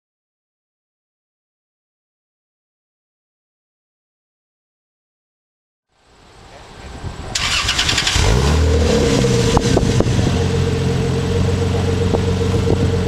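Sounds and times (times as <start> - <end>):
car engine idling: 6.1 - 13.0
starter cranking engine: 7.4 - 8.5.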